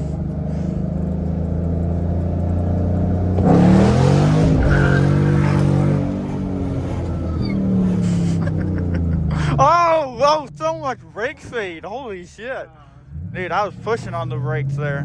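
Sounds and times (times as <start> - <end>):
car engine revving at full throttle: 0.0 - 9.6.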